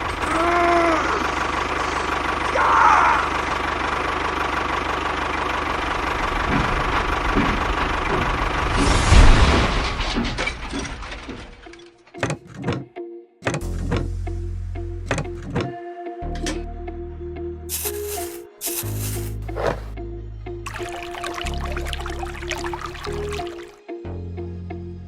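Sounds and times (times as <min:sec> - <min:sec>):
tractor motor running: 0:00.0 - 0:11.8, 0:17.7 - 0:19.9, 0:20.7 - 0:23.7.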